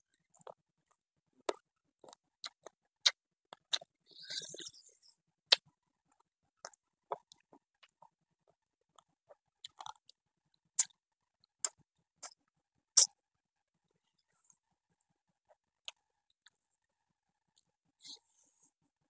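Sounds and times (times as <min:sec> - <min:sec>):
person chewing and crunching: 0:00.3 - 0:00.6, 0:01.4 - 0:05.6, 0:08.9 - 0:10.2.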